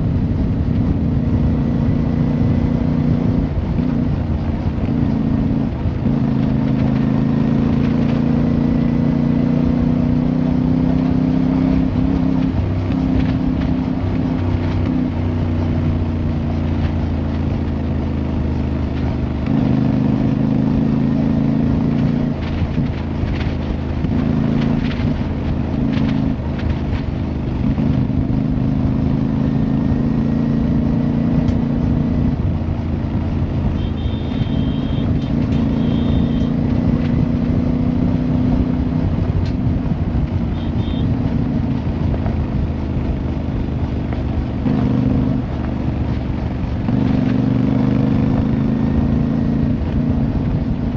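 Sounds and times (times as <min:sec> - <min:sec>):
motorcycle engine running: 0:00.0 - 0:50.9
short high beeps: 0:33.8 - 0:36.5.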